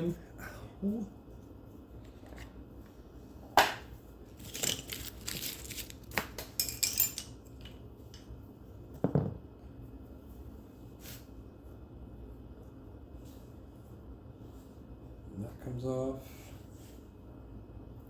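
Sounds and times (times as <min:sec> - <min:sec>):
metal parts rattling and scraping: 0:04.4 - 0:05.9, 0:06.6 - 0:07.8.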